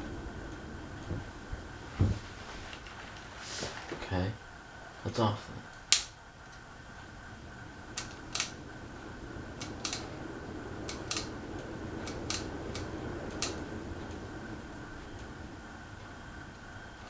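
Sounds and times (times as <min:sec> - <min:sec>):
ceiling fan humming: 0:00.0 - 0:17.0
sharp clicks: 0:05.7 - 0:06.6, 0:07.9 - 0:08.6, 0:09.6 - 0:10.1, 0:10.8 - 0:13.6.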